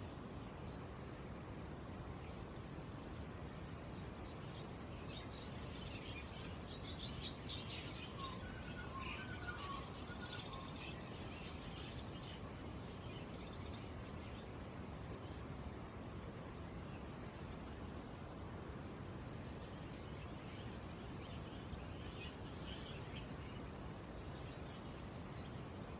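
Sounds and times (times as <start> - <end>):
caged birds chirping: 4.0 - 17.9, 19.1 - 25.9.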